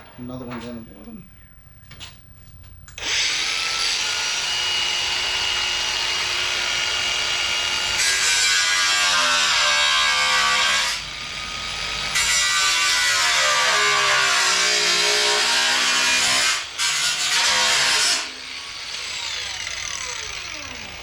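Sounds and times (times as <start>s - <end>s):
power tool grinding sheet steel: 3.0s - 21.0s.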